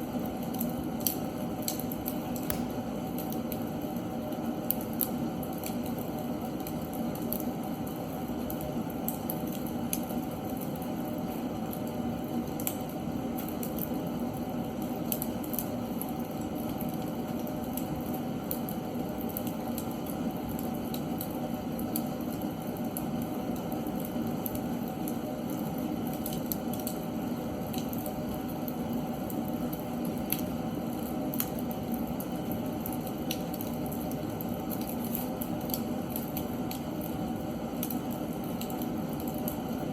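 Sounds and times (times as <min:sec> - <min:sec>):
logs crackling and popping: 0:00.5 - 0:03.6.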